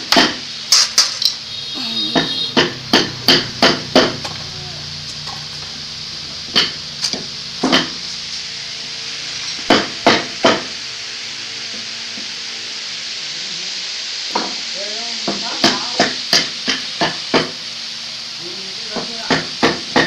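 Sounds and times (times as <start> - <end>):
hammer striking wood: 0.1 - 0.4, 2.1 - 4.4, 6.5 - 8.0, 9.7 - 10.7, 15.3 - 17.6, 19.0 - 20.0.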